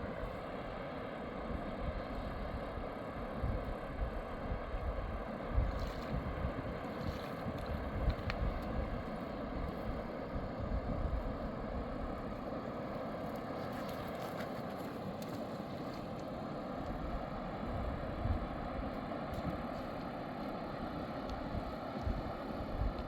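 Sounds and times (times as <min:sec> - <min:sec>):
wind buffeting microphone: 0:01.5 - 0:12.4, 0:16.9 - 0:20.0.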